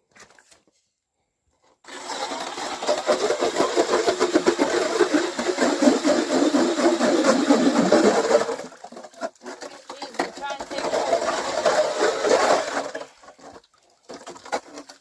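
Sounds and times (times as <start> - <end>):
electric ice auger drilling: 1.9 - 13.4.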